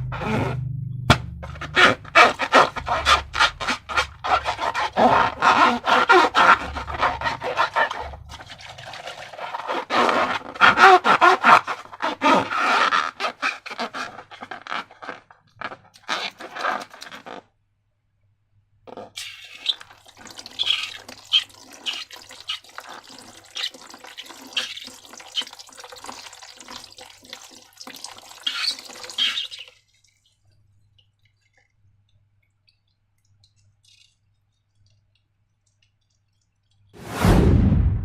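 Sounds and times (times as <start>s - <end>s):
slime squelching and crackling: 1.4s - 12.6s.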